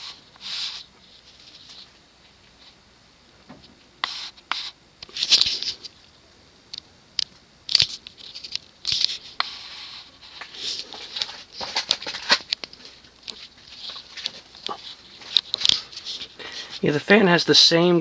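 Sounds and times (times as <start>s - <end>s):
scratching and rustling: 7.7s - 16.9s.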